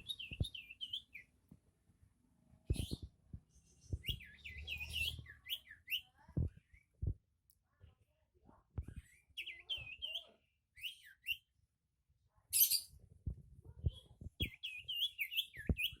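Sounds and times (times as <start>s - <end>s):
songbird chirping: 0.0s - 1.4s, 2.7s - 7.1s, 8.8s - 11.6s, 14.0s - 16.0s.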